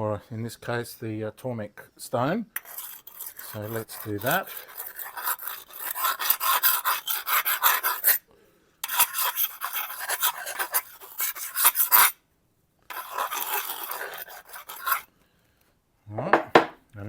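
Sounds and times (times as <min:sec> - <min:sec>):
knife scraping on sharpening stone: 0:02.6 - 0:08.2, 0:08.8 - 0:12.2, 0:12.9 - 0:15.1.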